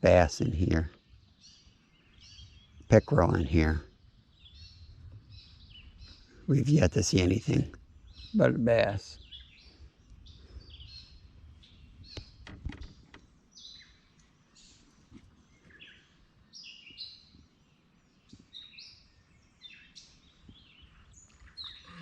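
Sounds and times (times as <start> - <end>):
birds singing and chirping: 0.0 - 22.0.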